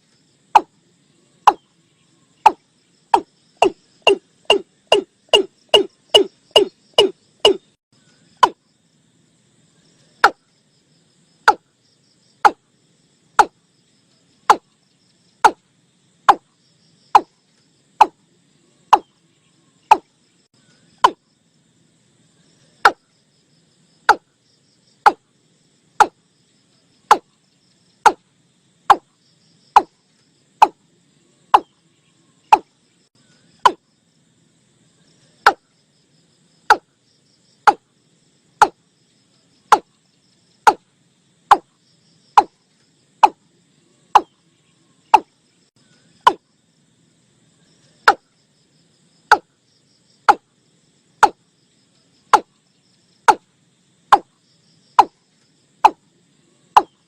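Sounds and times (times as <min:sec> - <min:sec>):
watercock calls: 0:03.2 - 0:07.7.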